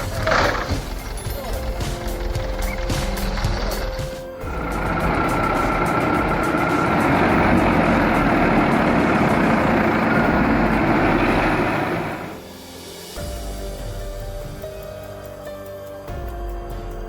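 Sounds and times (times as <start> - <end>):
heavy vehicle engine under load: 0.0 - 12.4.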